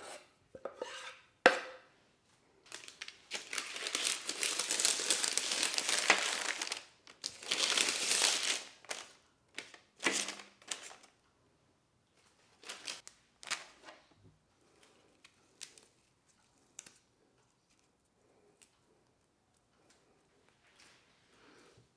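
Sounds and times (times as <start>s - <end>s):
crinkling rustling handling noise: 2.6s - 11.2s, 12.2s - 14.1s.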